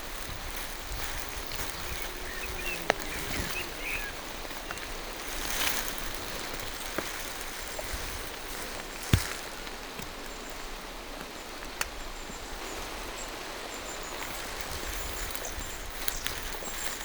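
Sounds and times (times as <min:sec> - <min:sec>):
raindrops tapping close by: 0:00.0 - 0:12.4
rain falling through trees: 0:00.0 - 0:17.0
faint bird chirps: 0:00.9 - 0:05.2.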